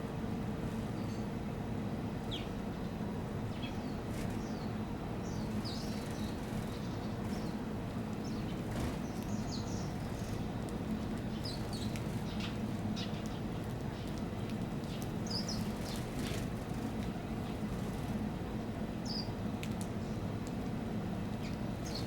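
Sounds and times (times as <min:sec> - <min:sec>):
steady low hum: 0:00.0 - 0:22.0
small birds chirping: 0:02.2 - 0:18.3, 0:19.0 - 0:19.4, 0:21.3 - 0:22.0.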